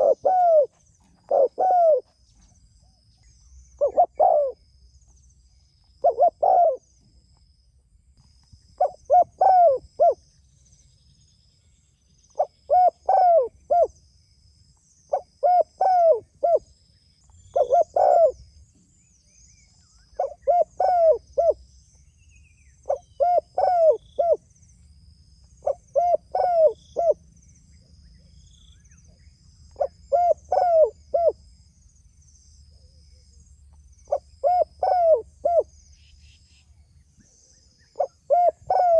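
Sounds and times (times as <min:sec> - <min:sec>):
dove cooing: 0:00.0 - 0:02.1, 0:03.8 - 0:04.6, 0:06.0 - 0:06.9, 0:08.8 - 0:10.2, 0:12.4 - 0:13.9, 0:15.1 - 0:16.7, 0:17.5 - 0:18.4, 0:20.2 - 0:21.6, 0:22.8 - 0:24.4, 0:25.6 - 0:27.2, 0:29.8 - 0:31.4, 0:34.1 - 0:35.7, 0:37.9 - 0:38.9
faint high chirping: 0:00.0 - 0:38.9.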